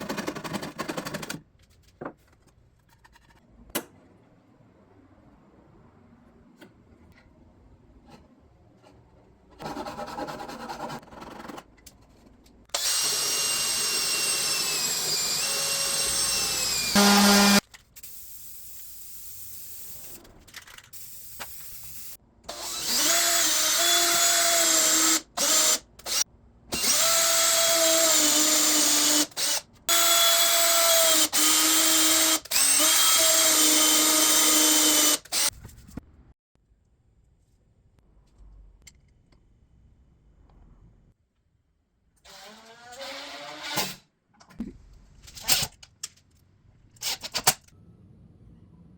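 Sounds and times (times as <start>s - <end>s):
electric power tool whining on wood: 12.8s - 17.6s.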